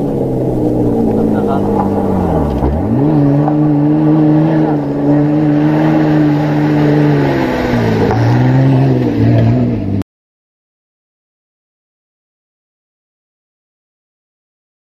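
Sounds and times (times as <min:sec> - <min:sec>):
race vehicle engine under load: 0:00.0 - 0:10.0.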